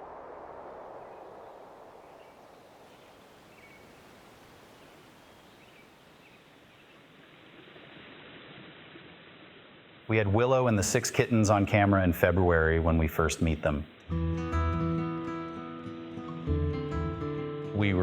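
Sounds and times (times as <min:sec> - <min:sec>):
low background hiss: 0:00.0 - 0:14.1
faint bird chirps: 0:00.2 - 0:07.4
music: 0:14.0 - 0:18.0.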